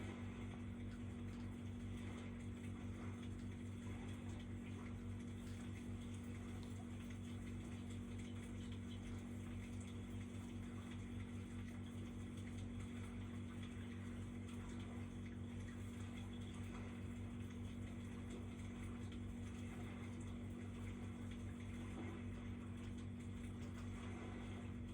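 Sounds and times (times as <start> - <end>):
low electrical hum: 0.0 - 24.9.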